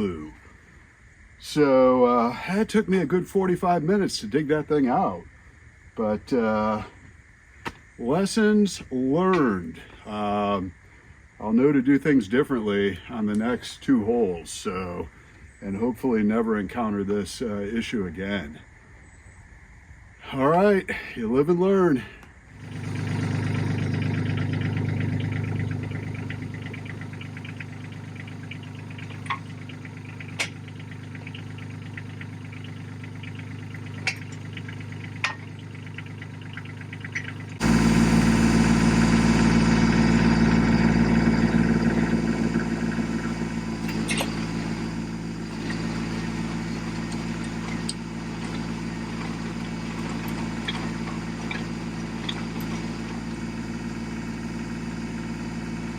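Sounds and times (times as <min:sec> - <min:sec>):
tractor engine running: 0:22.6 - 0:55.9.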